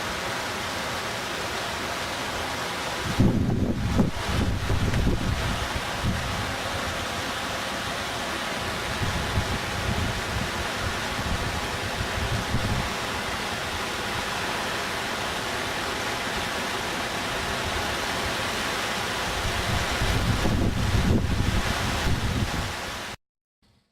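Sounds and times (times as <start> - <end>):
floodwater rushing: 0.0 - 23.2
wind buffeting microphone: 3.0 - 6.9, 8.8 - 13.3, 19.4 - 22.8.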